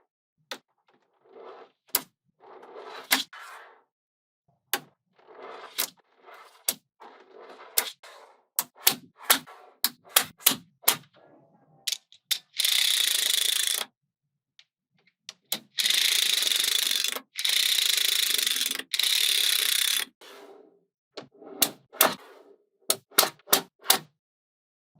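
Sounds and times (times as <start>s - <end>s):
fast ratchet-like rattling: 12.6s - 13.8s, 15.8s - 20.1s.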